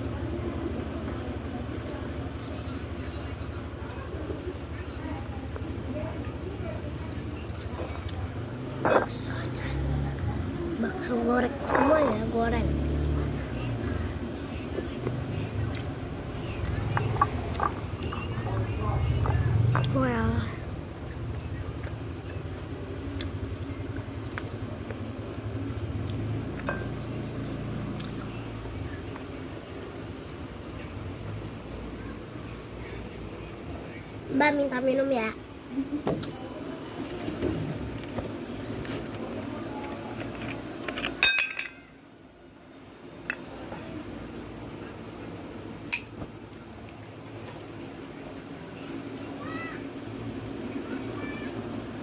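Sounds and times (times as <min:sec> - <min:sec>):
tableware clinking: 0:26.7 - 0:27.0, 0:41.1 - 0:41.9.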